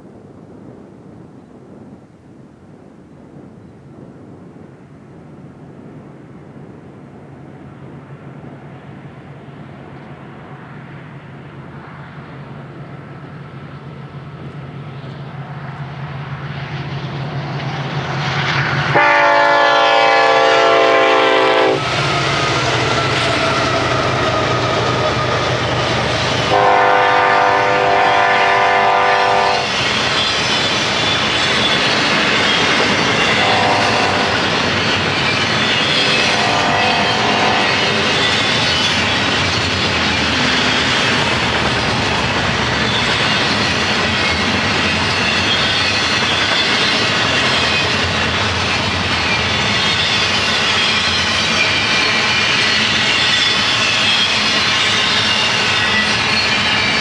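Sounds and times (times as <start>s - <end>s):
diesel locomotive engines: 3.3s - 57.0s
train cars clattering on rails: 12.4s - 57.0s
locomotive horn: 18.9s - 21.8s, 26.5s - 29.7s, 33.2s - 34.4s, 36.1s - 38.3s.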